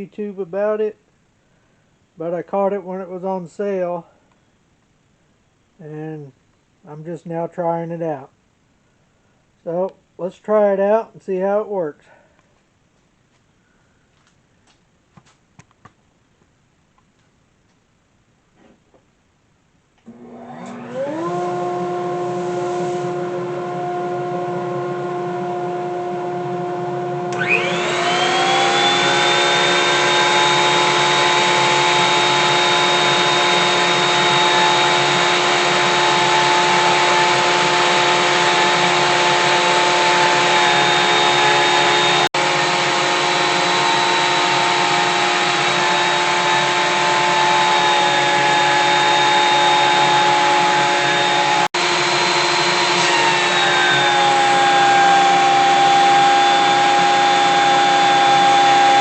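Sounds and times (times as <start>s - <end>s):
electric motor spinning up: 20.1s - 59.0s
planer motor whining: 20.1s - 59.0s.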